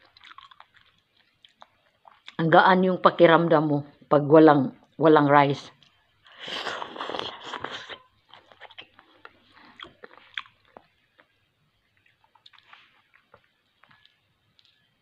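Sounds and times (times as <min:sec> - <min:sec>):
person chewing leafy greens: 0:00.0 - 0:02.4, 0:05.8 - 0:15.0.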